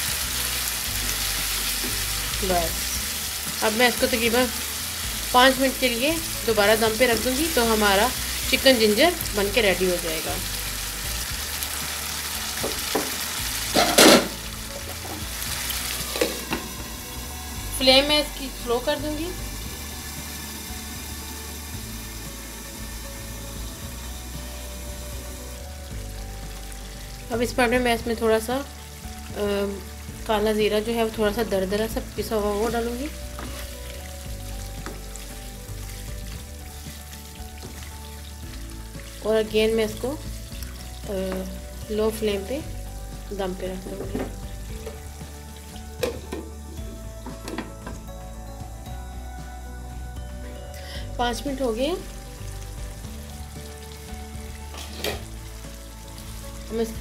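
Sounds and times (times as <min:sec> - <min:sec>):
chicken sizzling in a wok: 0:00.0 - 0:57.0
wooden spatula knocking pan: 0:12.6 - 0:13.2, 0:46.0 - 0:46.6.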